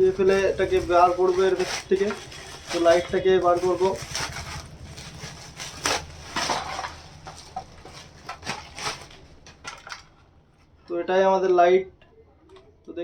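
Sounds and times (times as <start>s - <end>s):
packaging torn and crinkled: 0.0s - 10.2s.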